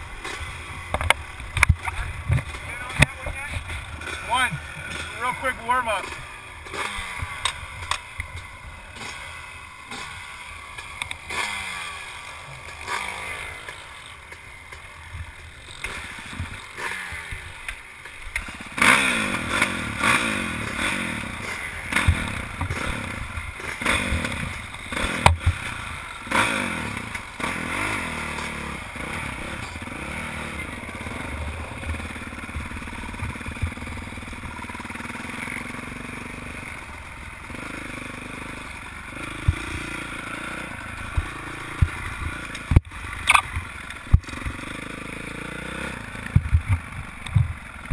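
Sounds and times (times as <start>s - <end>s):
motocross bike engine revving: 0.0s - 47.9s
bike knocks and clatter: 46.3s - 47.9s.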